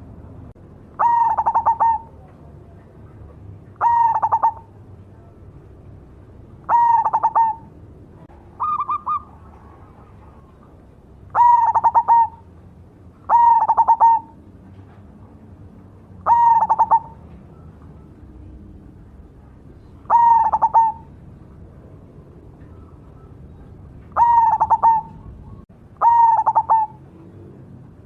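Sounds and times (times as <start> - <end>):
dove cooing: 1.0 - 2.3, 3.8 - 4.9, 6.6 - 7.8, 8.5 - 12.5, 13.3 - 14.5, 16.2 - 18.6, 19.8 - 21.2, 22.6 - 27.3.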